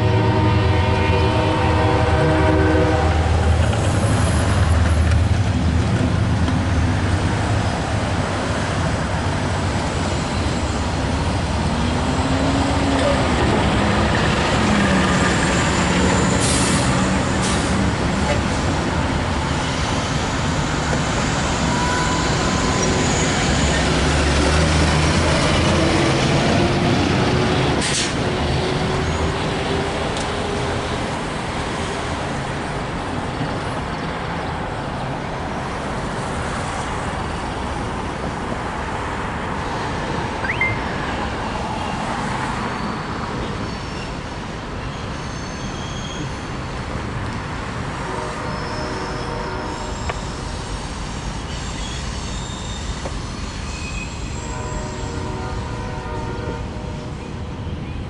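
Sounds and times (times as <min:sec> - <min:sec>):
train wheels rumbling on rails: 0:00.0 - 0:40.3, 0:41.0 - 0:58.0
high wheel squeal: 0:19.7 - 0:24.3, 0:42.7 - 0:46.5, 0:48.4 - 0:55.3.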